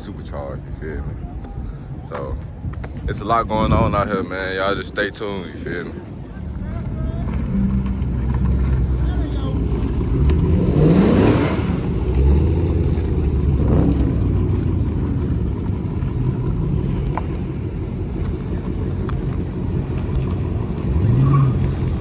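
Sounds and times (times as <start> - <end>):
car engine idling: 5.7 - 22.0
car engine revving: 6.7 - 22.0.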